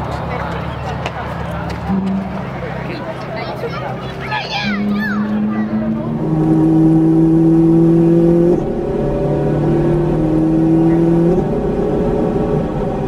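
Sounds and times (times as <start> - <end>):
car engine accelerating with upshifts: 4.7 - 13.0.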